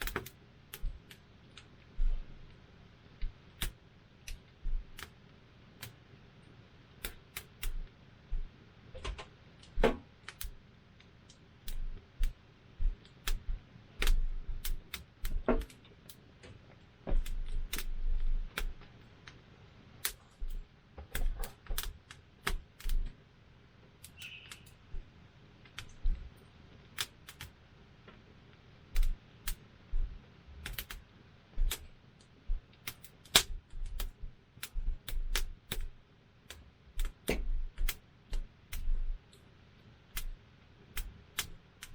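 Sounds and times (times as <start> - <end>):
campfire wood crackling: 9.6 - 19.4, 20.0 - 23.1, 32.5 - 39.2.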